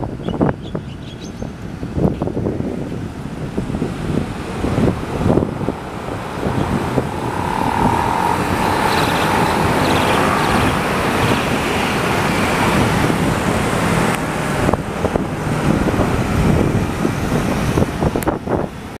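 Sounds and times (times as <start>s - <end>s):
road noise: 0.0s - 19.0s
fire engine driving past: 3.0s - 19.0s
high tone: 6.5s - 12.0s.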